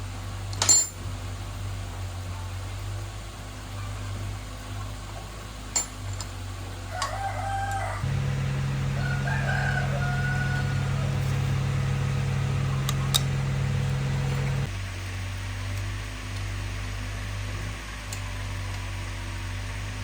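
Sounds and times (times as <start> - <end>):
rooster crowing: 6.9 - 14.7
low machine hum: 8.0 - 14.7.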